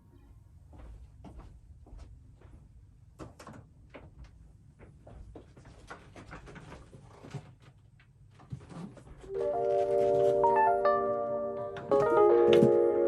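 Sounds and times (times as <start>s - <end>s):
soft mallet-keyboard music: 9.3s - 13.0s.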